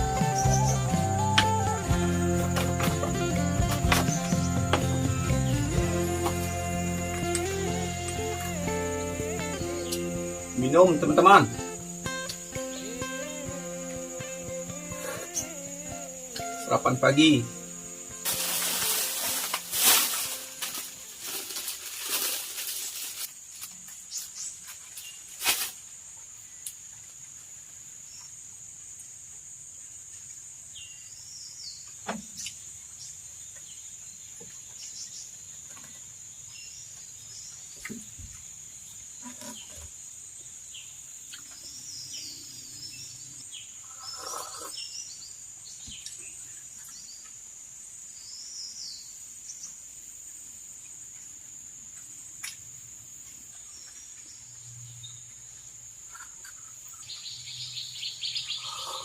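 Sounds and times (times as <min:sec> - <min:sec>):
birds chirping: 0:00.0 - 0:21.4, 0:39.2 - 0:47.4, 0:53.3 - 0:59.0
high insect drone: 0:00.0 - 0:33.2, 0:34.9 - 0:59.0.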